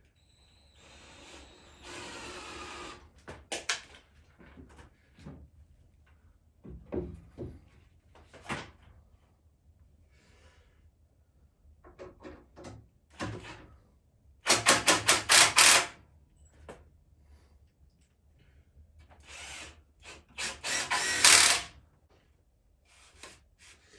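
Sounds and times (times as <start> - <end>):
knocks and clunks of wood and tools: 6.6 - 8.8.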